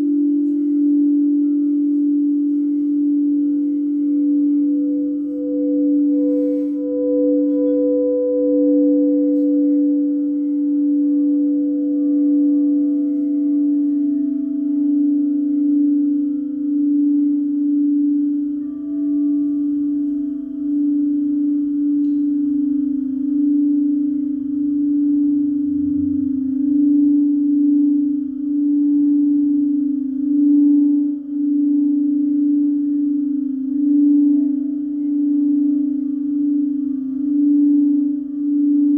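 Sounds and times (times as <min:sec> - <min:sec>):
higher singing bowl tone: 0:00.0 - 0:38.9
singing bowl ringing: 0:00.0 - 0:38.9.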